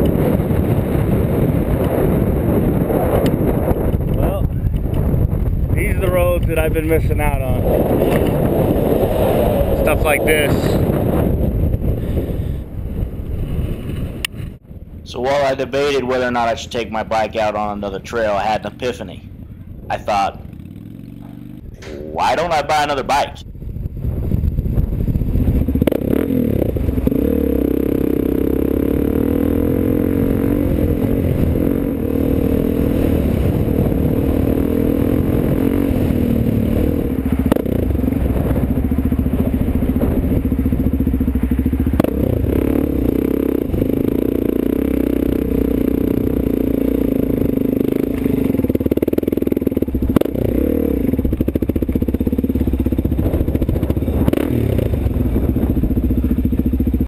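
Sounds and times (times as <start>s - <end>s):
motorcycle engine running: 0.0s - 15.0s, 17.4s - 57.0s
sharp knocks and clatter: 21.2s - 22.7s.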